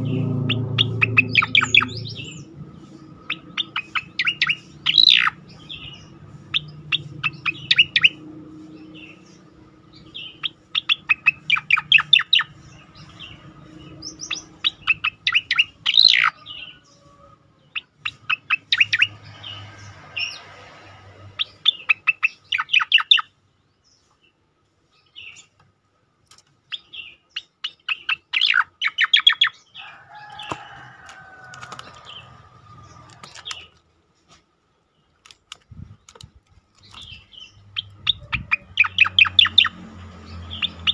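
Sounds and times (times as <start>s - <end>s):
bush lark singing high chirps: 0.0s - 8.2s.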